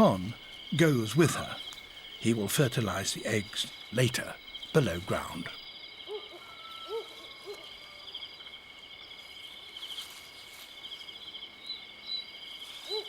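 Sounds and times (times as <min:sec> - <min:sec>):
insect chorus trilling: 0:00.0 - 0:13.0.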